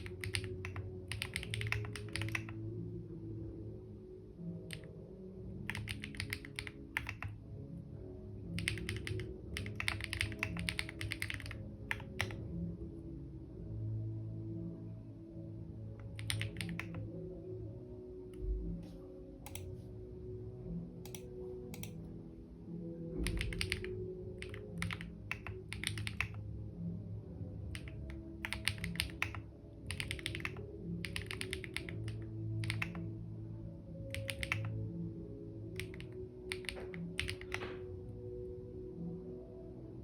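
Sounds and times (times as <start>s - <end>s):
typing on a keyboard: 0.0s - 2.6s, 5.7s - 7.4s, 8.6s - 12.4s, 16.0s - 17.0s, 23.2s - 26.4s, 27.7s - 33.0s, 34.1s - 34.8s, 35.8s - 37.8s
soft background music: 0.0s - 40.0s.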